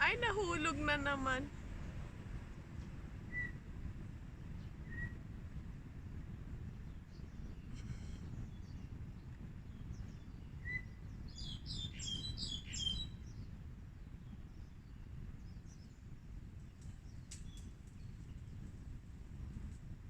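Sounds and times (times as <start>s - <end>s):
birds chirping: 0.0s - 1.8s, 9.7s - 13.5s
low outdoor rumble: 0.0s - 11.9s, 13.0s - 20.0s.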